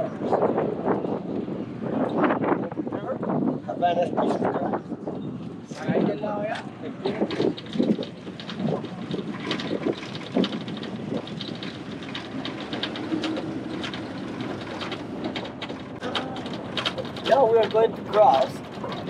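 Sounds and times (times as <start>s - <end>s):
wind and road noise: 0.0s - 19.0s
small clicks and rattles: 6.6s - 19.0s.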